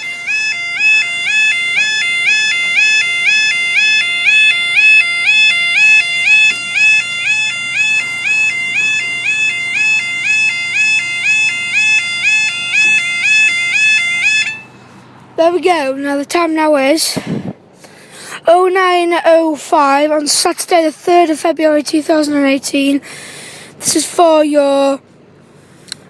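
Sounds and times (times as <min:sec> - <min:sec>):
level crossing warning alarm: 0:00.0 - 0:14.8.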